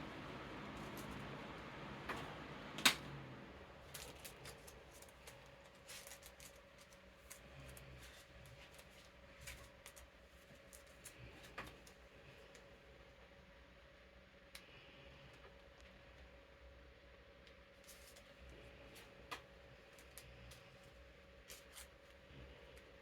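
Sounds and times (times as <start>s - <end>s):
fan humming: 0.0s - 13.6s
cards clicking and rustling: 3.8s - 12.0s.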